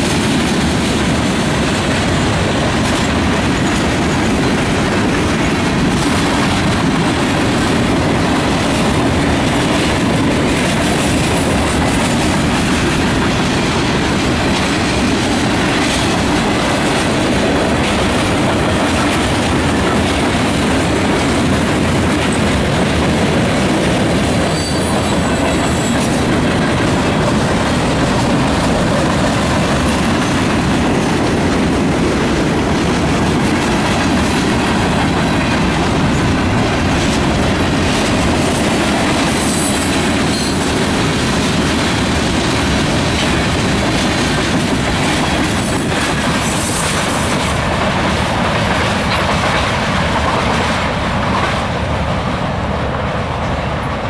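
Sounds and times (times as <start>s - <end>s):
freight train cars rolling: 0.0s - 54.0s
high-pitched wheel squeals: 24.5s - 26.0s.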